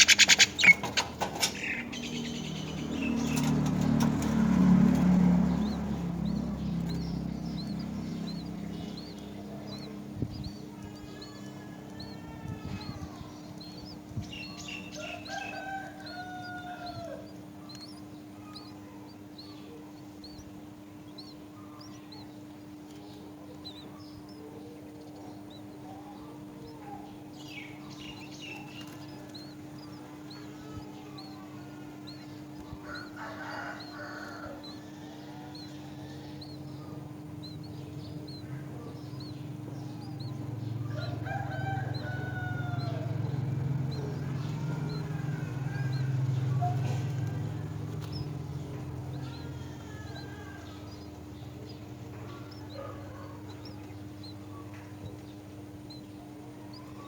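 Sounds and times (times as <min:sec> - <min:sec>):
small bird chirping: 0:00.0 - 0:57.0
rooster crowing: 0:10.7 - 0:13.3, 0:14.3 - 0:17.3, 0:30.3 - 0:37.0, 0:38.3 - 0:51.5.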